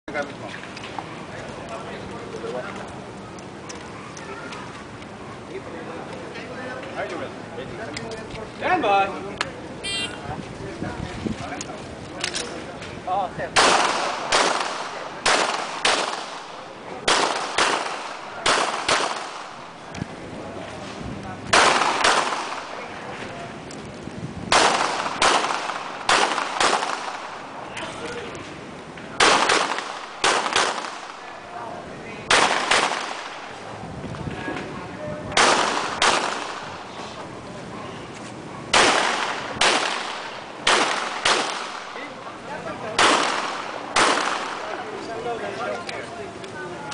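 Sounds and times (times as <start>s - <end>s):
pistol shots with echo: 13.6s - 19.8s, 21.5s - 22.9s, 24.5s - 27.5s, 29.2s - 31.3s, 32.3s - 33.6s, 35.3s - 36.9s, 38.7s - 42.2s, 42.9s - 44.8s.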